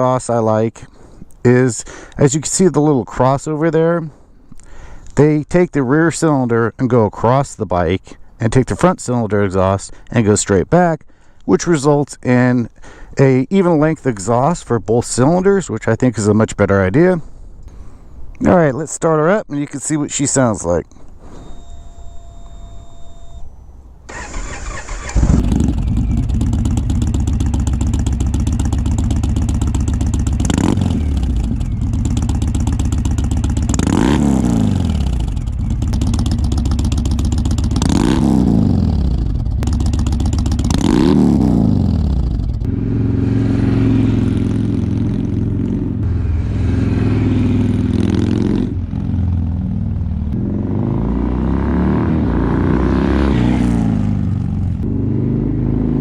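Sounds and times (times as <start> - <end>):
motorcycle starter cranking: 24.1 - 30.5
motorcycle engine idling and revving: 24.1 - 56.0.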